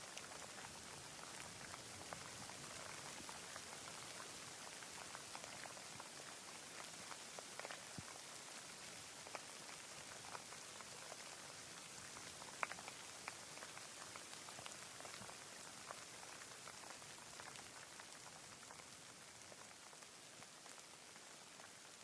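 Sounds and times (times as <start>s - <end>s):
raindrops pattering close by: 0.0s - 22.0s
steady rain hissing: 0.0s - 22.0s.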